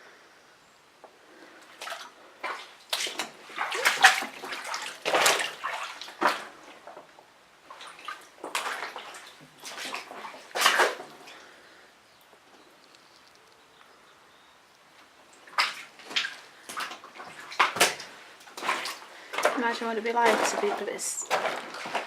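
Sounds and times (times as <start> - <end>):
footsteps splashing through water: 1.7 - 11.4, 15.3 - 22.0.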